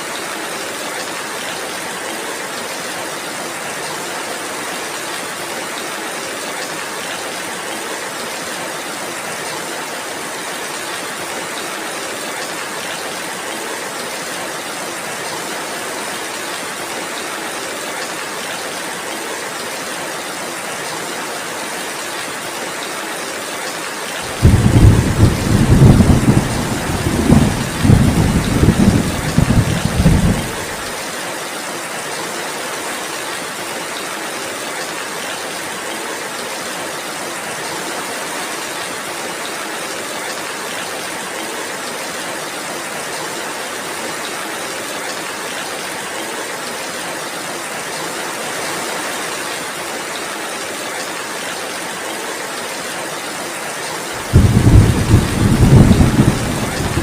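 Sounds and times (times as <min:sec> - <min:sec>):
heavy rain hissing: 0:24.1 - 0:31.1, 0:54.1 - 0:57.0
thunder rumbling: 0:24.3 - 0:30.8, 0:54.2 - 0:57.0.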